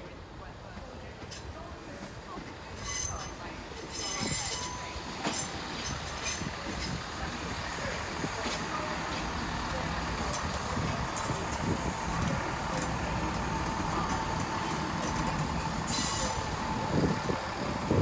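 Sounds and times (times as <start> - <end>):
train wheels and engine rumbling: 0.0 - 18.0
rail joint clicks: 1.2 - 17.9
thin wheel squeal: 15.9 - 16.4.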